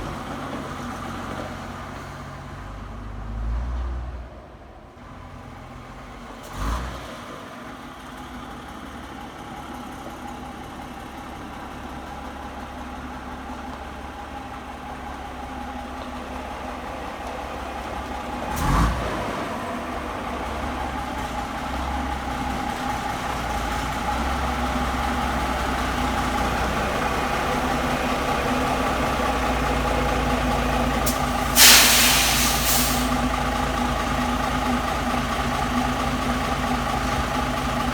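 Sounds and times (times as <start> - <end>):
diesel engine running: 0.0 - 37.9
compressed air hiss: 31.1 - 33.2.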